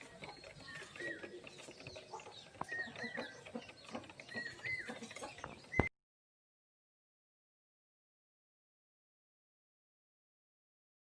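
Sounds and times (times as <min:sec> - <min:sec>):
chickens clucking: 0:00.0 - 0:05.9.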